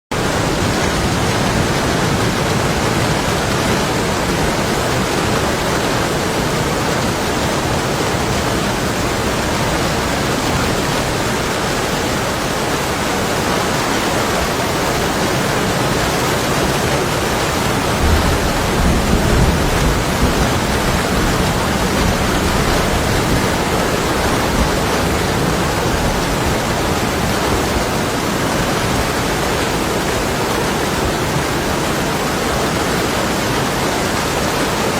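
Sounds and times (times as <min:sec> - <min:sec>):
heavy rain on window glass: 0:00.1 - 0:34.9
distant thunder rumble: 0:16.3 - 0:27.9.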